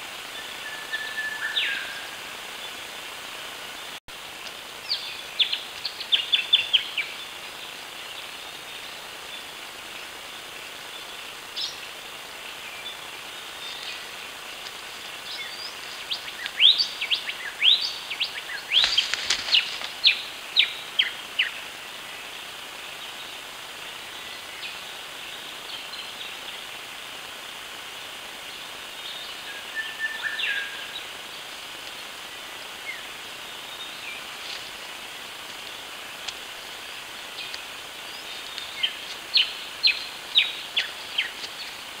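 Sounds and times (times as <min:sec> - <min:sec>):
background hiss: 0:00.0 - 0:42.0
bird chirping: 0:15.1 - 0:21.6, 0:36.5 - 0:41.8.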